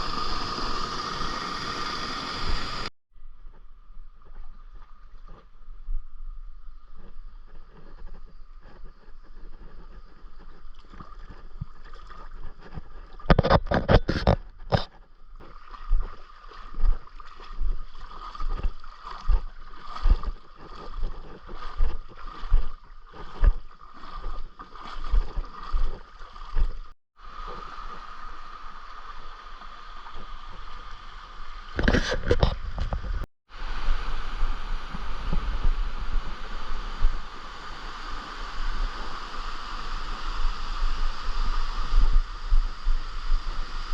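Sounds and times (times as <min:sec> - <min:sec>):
stream water running: 0:00.0 - 0:02.9, 0:04.2 - 0:43.9.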